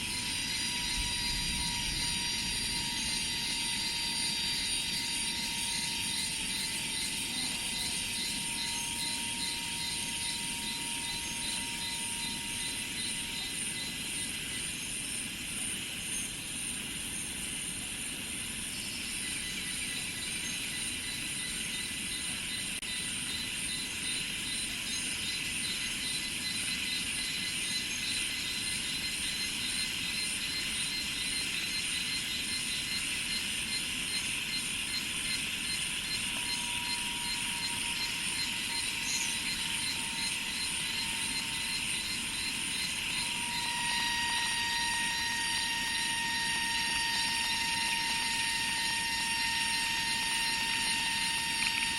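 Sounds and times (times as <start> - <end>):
cicadas and insects chorus: 0.0 - 51.9.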